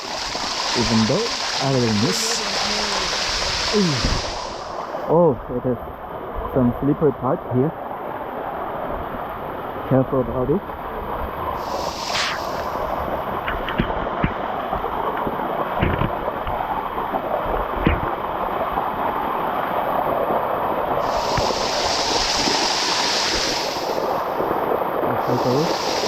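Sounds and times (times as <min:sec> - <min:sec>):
bright hiss: 0:00.0 - 0:04.9, 0:11.6 - 0:13.0, 0:21.0 - 0:24.2, 0:25.2 - 0:26.0
waterfall rushing over rock: 0:00.0 - 0:05.2, 0:07.8 - 0:26.0.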